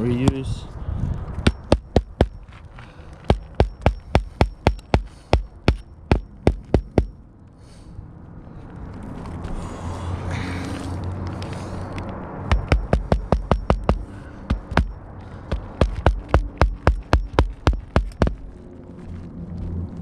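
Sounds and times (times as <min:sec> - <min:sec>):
hammer driving nails into shingle: 0:01.4 - 0:02.4, 0:03.2 - 0:07.2, 0:12.5 - 0:18.4.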